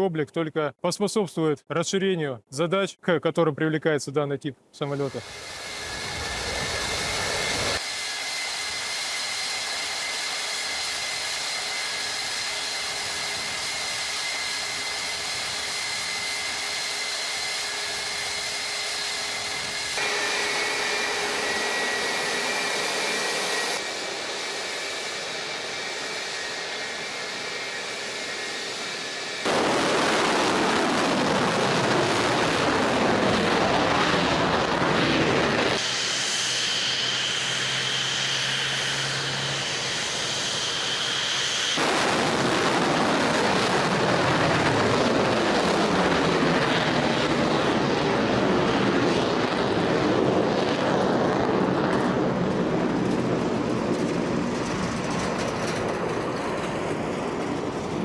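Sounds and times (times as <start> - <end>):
jet passing: 4.9 - 8.5, 18.4 - 58.0
jet engines whining: 4.9 - 58.0.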